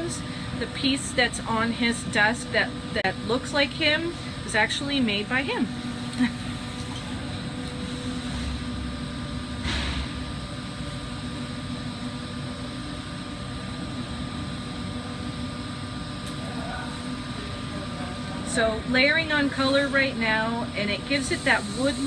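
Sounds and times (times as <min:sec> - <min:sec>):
ventilation hum: 0:00.0 - 0:22.0
torch flame roaring: 0:05.4 - 0:19.9.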